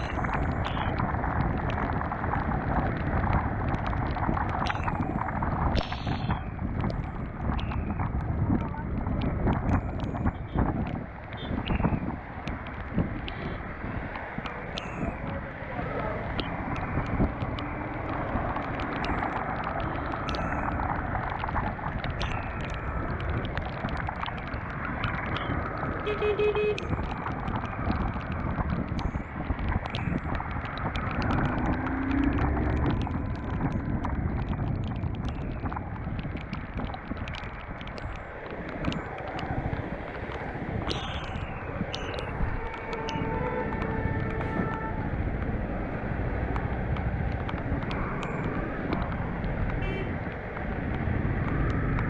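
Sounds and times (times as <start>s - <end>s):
wind rushing over microphone: 0.0s - 52.0s
sharp ticks: 16.3s - 52.0s.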